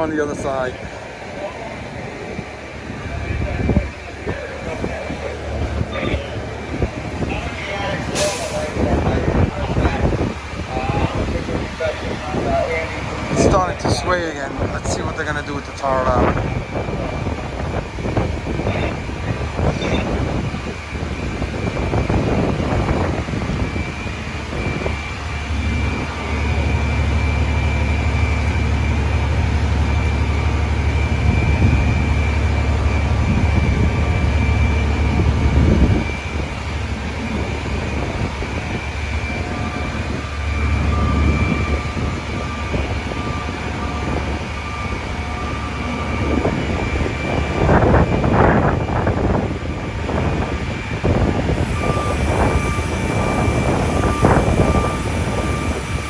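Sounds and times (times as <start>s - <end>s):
city traffic: 0.0s - 56.0s
heavy engines rumbling: 0.0s - 56.0s
wind on microphone: 2.0s - 56.0s
thin steady high tone: 51.4s - 56.0s.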